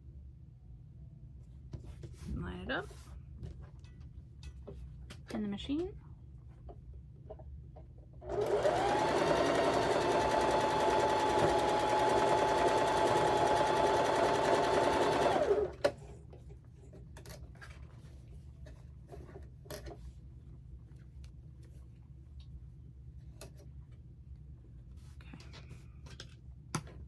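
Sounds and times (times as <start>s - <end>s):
sewing machine stitching: 8.2s - 16.0s.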